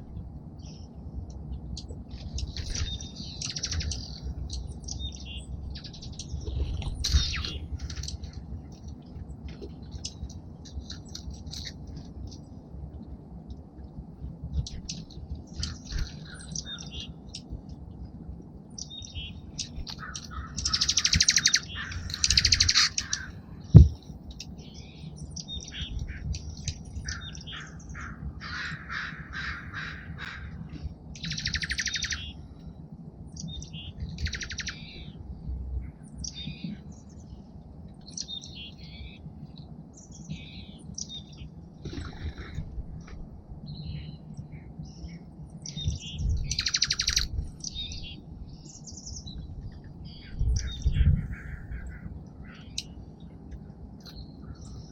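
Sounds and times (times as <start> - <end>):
songbirds chirping: 0.0 - 54.9
rapid trilled bird chatter: 2.2 - 8.4, 18.8 - 32.4, 33.4 - 35.2, 43.9 - 48.0.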